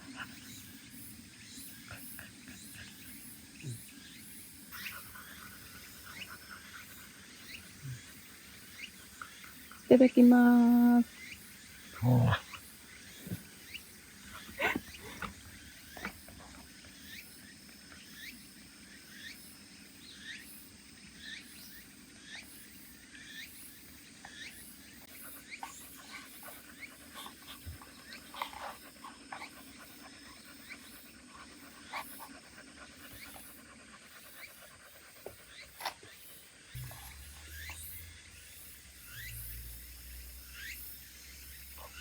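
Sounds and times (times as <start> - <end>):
dog whimpering: 14.6 - 15.3.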